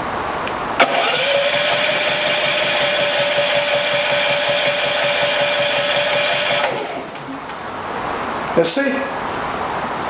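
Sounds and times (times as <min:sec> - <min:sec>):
generator engine running: 0:00.6 - 0:08.6.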